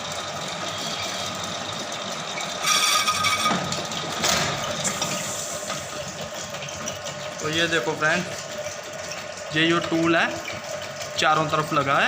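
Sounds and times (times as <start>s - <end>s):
metal lathe humming and whining: 0.5s - 3.6s.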